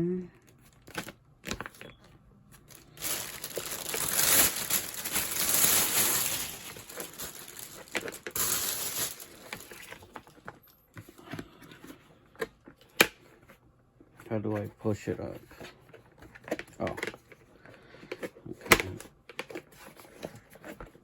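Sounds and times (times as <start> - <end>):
packaging crinkling and rustling: 0.5 - 11.1, 14.5 - 21.0.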